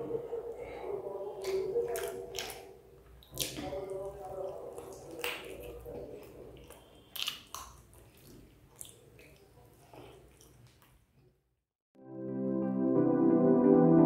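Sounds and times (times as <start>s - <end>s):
chewing with wet mouth clicks: 1.4s - 11.3s
soft ambient keyboard music: 12.0s - 14.0s.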